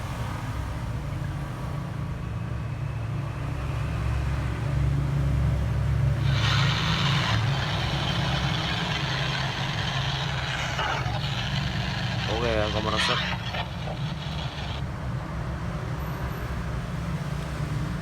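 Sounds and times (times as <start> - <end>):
loud hiss: 6.2 - 14.8
low mechanical hum: 6.2 - 14.9.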